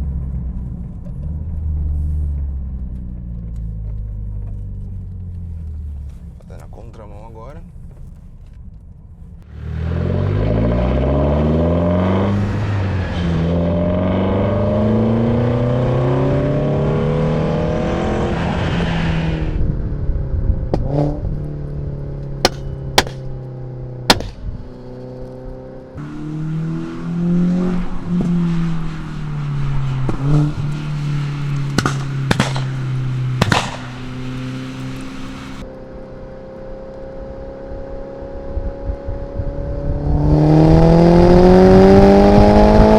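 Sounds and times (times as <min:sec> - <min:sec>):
car engine accelerating hard: 0:09.4 - 0:42.9
exhaust cracks: 0:20.6 - 0:25.3, 0:26.0 - 0:35.6.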